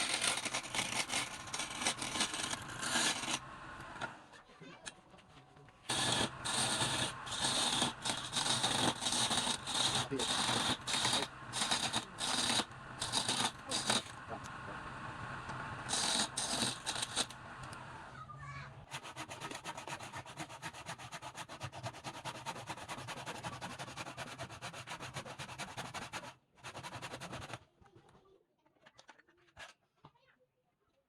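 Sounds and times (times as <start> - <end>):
sanding against turning wood: 0.0 - 3.4, 5.9 - 14.2, 15.9 - 17.3, 18.9 - 27.5
lathe humming: 5.9 - 18.1.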